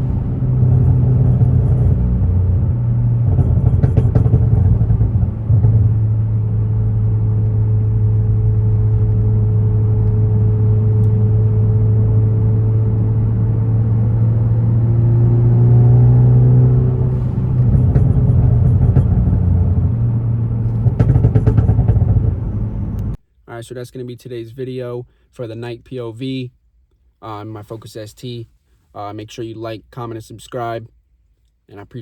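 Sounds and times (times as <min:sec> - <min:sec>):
faint exhaust cracks: 0:00.0 - 0:11.6, 0:16.8 - 0:23.2
car engine and exhaust droning: 0:00.0 - 0:23.2.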